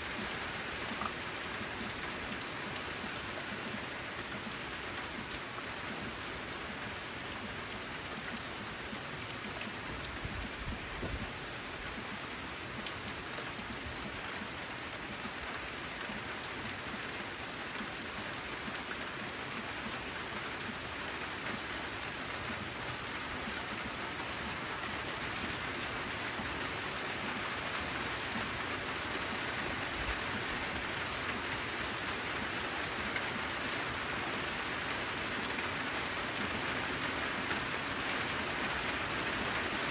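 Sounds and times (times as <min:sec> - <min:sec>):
rain on a metal roof: 0:00.0 - 0:39.9.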